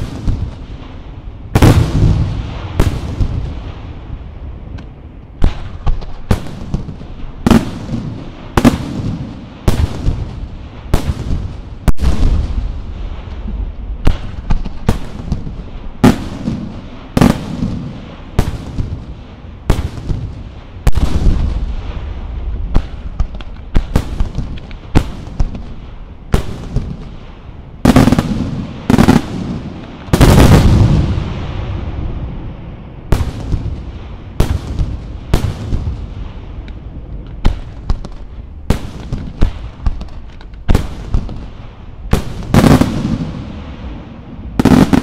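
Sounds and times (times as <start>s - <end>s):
firework bangs with echo: 0.0s - 4.2s, 5.4s - 32.4s, 33.1s - 45.0s
low rumble: 30.7s - 38.8s.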